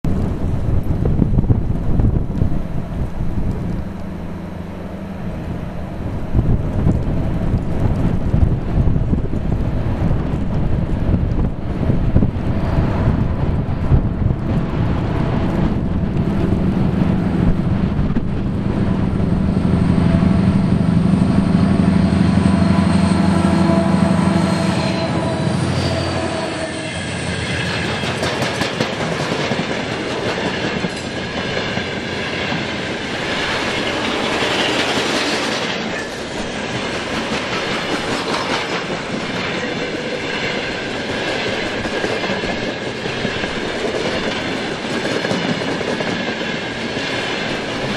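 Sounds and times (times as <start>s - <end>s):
diesel locomotive rumbling: 0.0s - 47.9s
train wheels clickety-clack: 26.9s - 47.9s.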